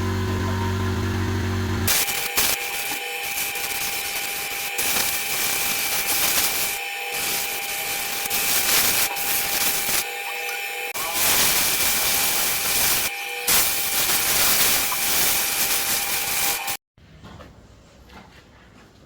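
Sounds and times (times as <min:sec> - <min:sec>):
lathe machine whine: 0:00.0 - 0:16.8
tool hissing against spinning wood: 0:01.9 - 0:16.8.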